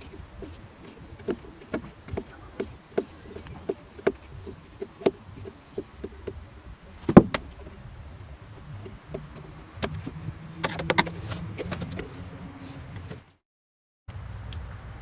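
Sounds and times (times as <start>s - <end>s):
tool clicking and knocking: 0.0s - 6.4s, 7.0s - 7.7s.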